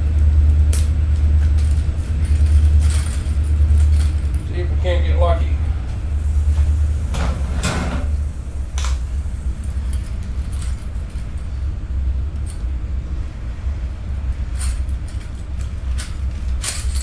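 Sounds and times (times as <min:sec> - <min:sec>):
low rumble: 0:00.0 - 0:17.0
metal wrenches clinking: 0:14.6 - 0:17.0.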